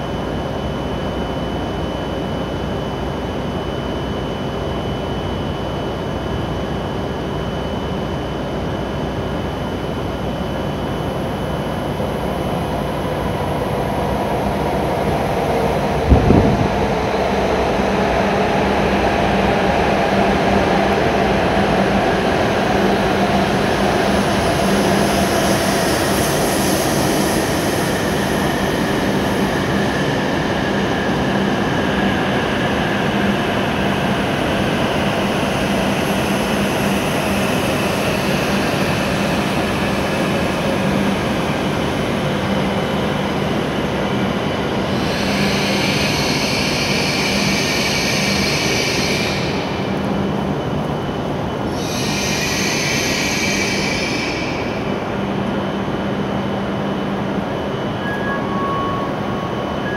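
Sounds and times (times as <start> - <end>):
train wheels and motors rumbling: 0.0 - 58.1
high-pitched brake squeal: 45.0 - 49.8, 51.7 - 54.9, 58.0 - 59.9.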